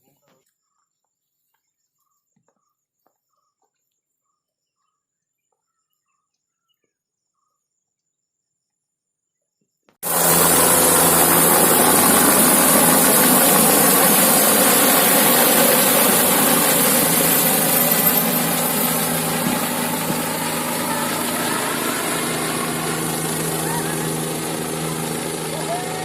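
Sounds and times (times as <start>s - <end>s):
helicopter passing overhead: 10.0s - 26.0s.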